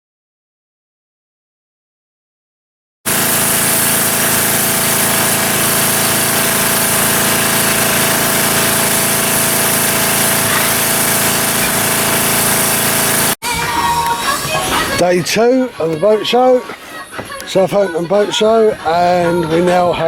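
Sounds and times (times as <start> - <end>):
motor humming with hiss: 3.1 - 13.4.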